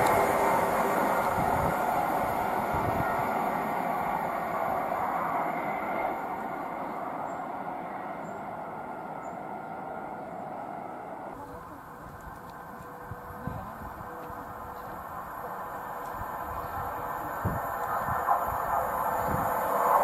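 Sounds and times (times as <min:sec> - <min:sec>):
electric train running: 0:00.0 - 0:20.0.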